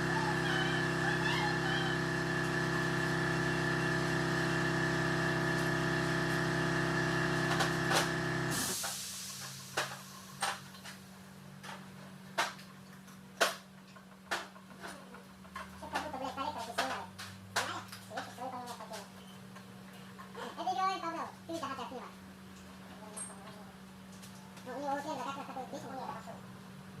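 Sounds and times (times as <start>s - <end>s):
steady machine drone: 0.0s - 8.8s.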